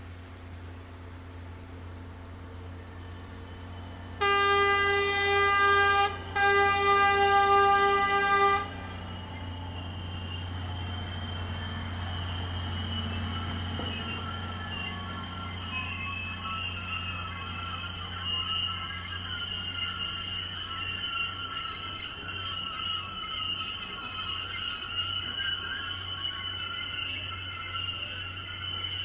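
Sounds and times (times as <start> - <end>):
train horn blasts: 4.2 - 8.8.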